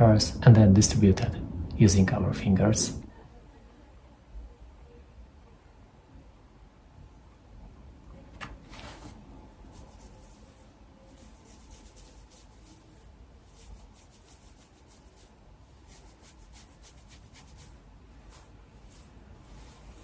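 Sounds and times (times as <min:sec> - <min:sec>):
fingers rustling through hair: 0:08.6 - 0:20.0.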